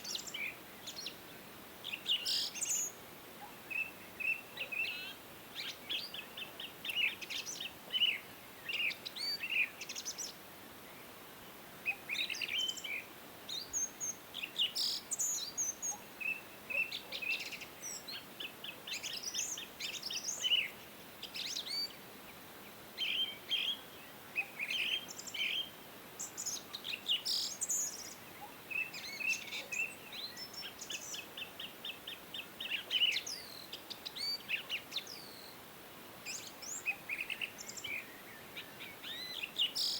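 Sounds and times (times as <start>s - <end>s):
faint steady background hiss: 0.0s - 39.9s
wild birds chirping and singing: 0.0s - 39.9s.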